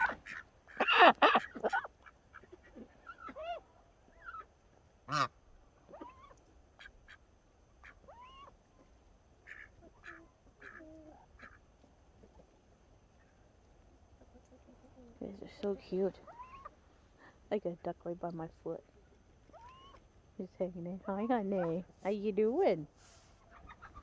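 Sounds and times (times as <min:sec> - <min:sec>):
ducks quacking: 0:00.0 - 0:07.2, 0:09.4 - 0:11.7
goose honking: 0:05.1 - 0:05.4.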